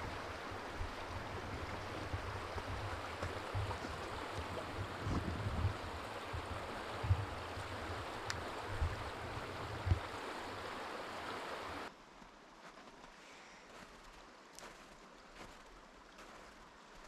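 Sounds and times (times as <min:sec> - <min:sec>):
stream rushing: 0:00.0 - 0:11.9.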